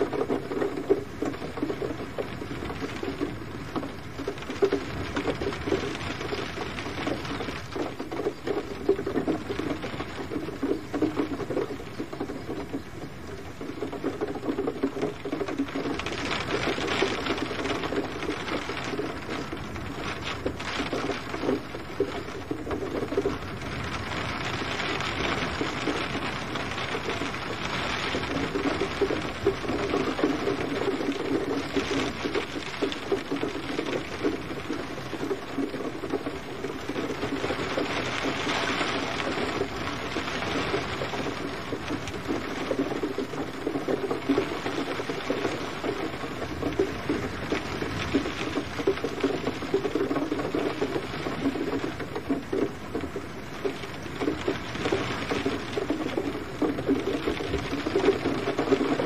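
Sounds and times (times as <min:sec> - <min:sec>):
gentle rain patter: 0:00.0 - 0:59.0.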